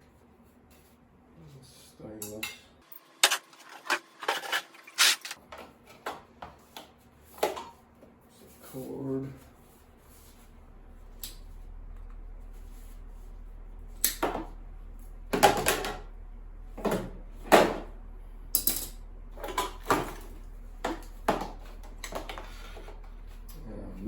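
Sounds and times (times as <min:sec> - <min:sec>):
scrap metal clunking into bins: 0:03.0 - 0:05.4
steady low hum: 0:07.0 - 0:24.0.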